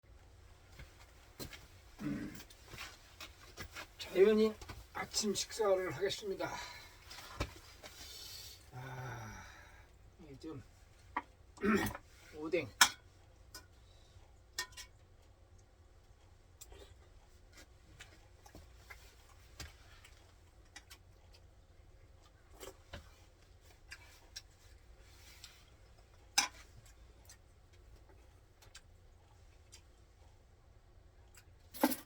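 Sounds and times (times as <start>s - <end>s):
faint low hum: 0.1s - 32.0s.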